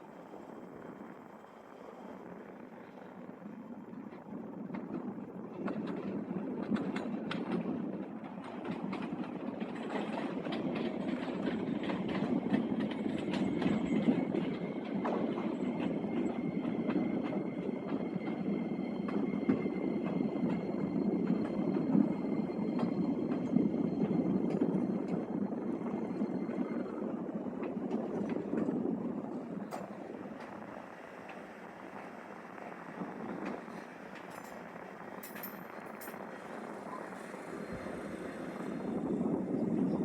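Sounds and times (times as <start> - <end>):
train rumble: 0.0 - 40.0
train wheels clicking over rails: 4.1 - 40.0.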